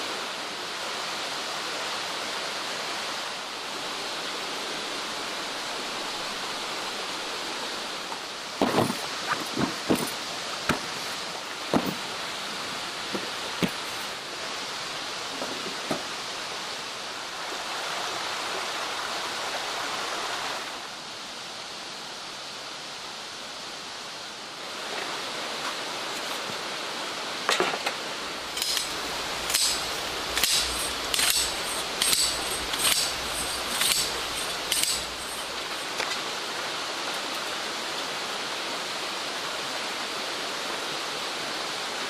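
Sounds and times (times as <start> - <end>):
stream rushing: 0.0 - 42.0.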